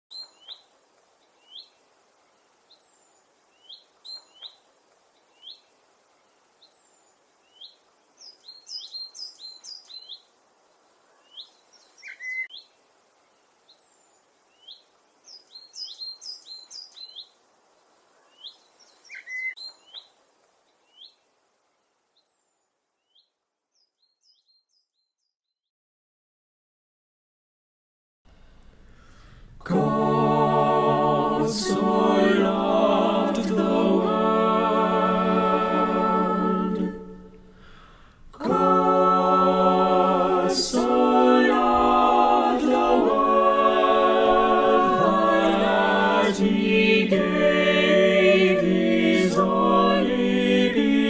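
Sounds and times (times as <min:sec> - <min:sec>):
faint outdoor background noise: 0:00.0 - 0:25.3, 0:28.3 - 0:51.0
small birds chirping and twittering: 0:00.1 - 0:25.6.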